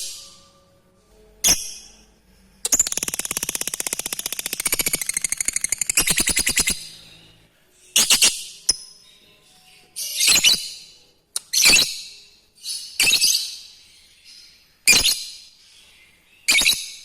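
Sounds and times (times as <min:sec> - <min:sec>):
bird rapid rattling chatter: 0:02.7 - 0:06.7.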